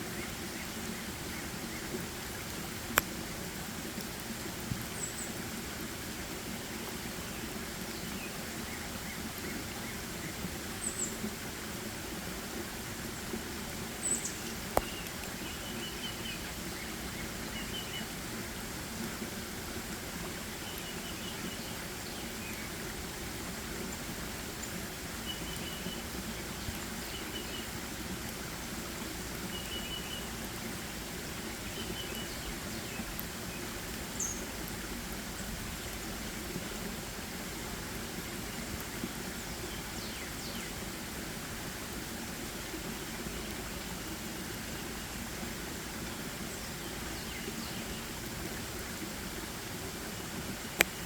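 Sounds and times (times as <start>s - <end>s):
background rush of noise: 0.0s - 51.0s
small birds chirping: 13.1s - 18.6s, 20.5s - 22.8s, 23.9s - 27.8s, 28.6s - 34.8s, 46.4s - 48.3s.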